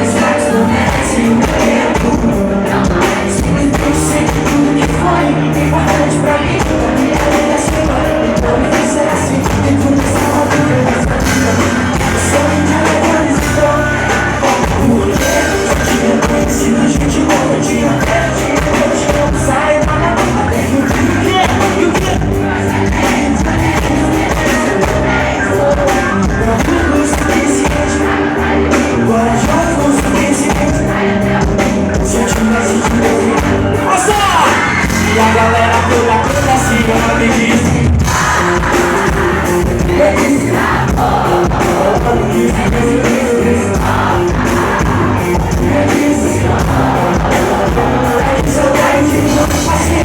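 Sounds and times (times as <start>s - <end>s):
live band with singer: 0.0s - 50.0s
steady drum beat: 0.0s - 50.0s.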